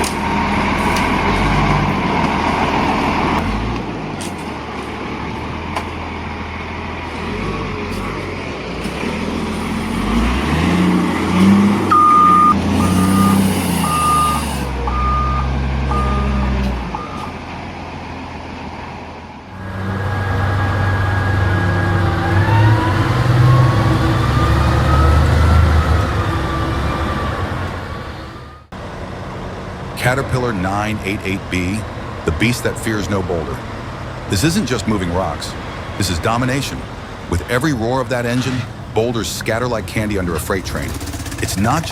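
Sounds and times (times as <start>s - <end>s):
diesel engine revving with whine: 0.0s - 29.1s, 40.0s - 41.9s
diesel machine engine under load: 0.0s - 41.9s
back-up alarm beeping: 11.9s - 16.4s.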